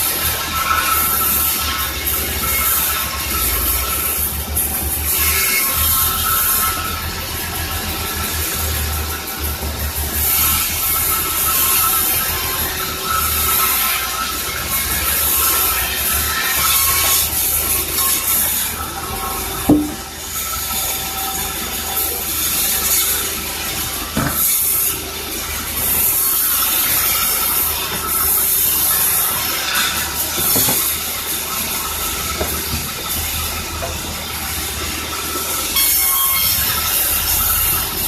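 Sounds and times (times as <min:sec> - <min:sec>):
saw cutting timber: 0:00.0 - 0:38.0
sawmill machinery running: 0:00.0 - 0:38.0
sharp knocks: 0:19.7 - 0:20.1.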